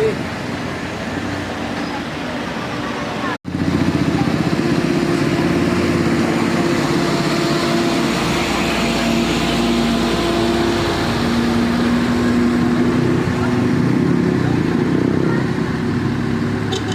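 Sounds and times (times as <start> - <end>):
vehicle engine running: 3.5 - 16.9.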